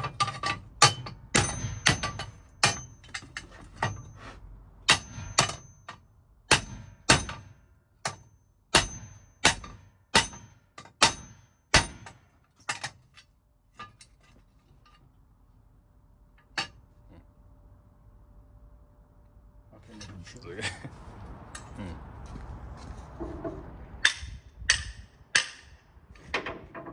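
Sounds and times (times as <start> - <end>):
hammer striking metal: 0.0 - 3.2, 4.9 - 12.9, 24.0 - 26.6.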